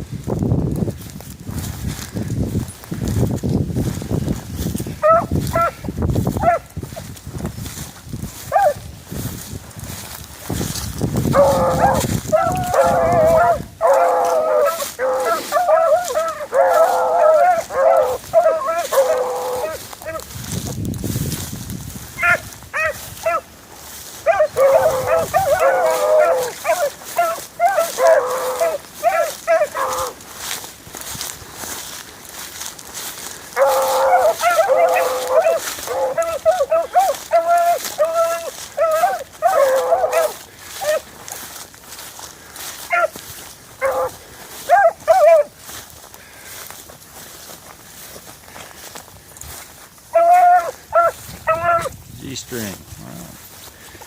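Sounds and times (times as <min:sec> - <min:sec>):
wind rumbling on microphone: 0:00.0 - 0:46.0, 0:46.6 - 0:54.0
hounds yelping barks: 0:04.9 - 0:07.1, 0:08.4 - 0:08.9, 0:11.2 - 0:20.3, 0:22.1 - 0:30.6, 0:32.4 - 0:41.6, 0:42.6 - 0:45.8, 0:50.1 - 0:52.0
hound baying: 0:05.0 - 0:06.7, 0:08.5 - 0:08.9, 0:11.2 - 0:20.3, 0:22.1 - 0:30.5, 0:33.2 - 0:41.1, 0:42.8 - 0:45.7, 0:50.1 - 0:52.0.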